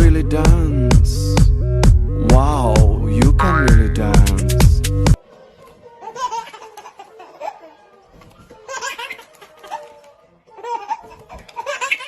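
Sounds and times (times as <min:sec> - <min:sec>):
person laughing: 0:03.3 - 0:04.4.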